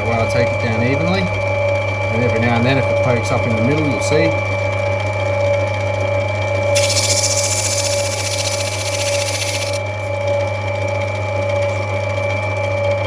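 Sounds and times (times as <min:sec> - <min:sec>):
grinding wheel motor hum: 0:06.7 - 0:09.8
stone grinding hiss: 0:06.8 - 0:09.8.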